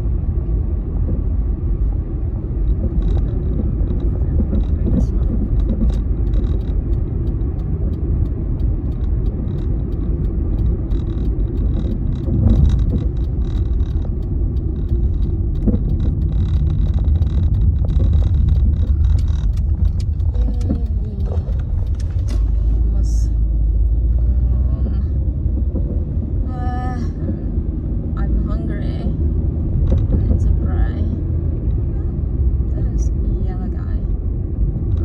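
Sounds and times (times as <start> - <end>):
road and engine rumble inside car: 0.0 - 35.0.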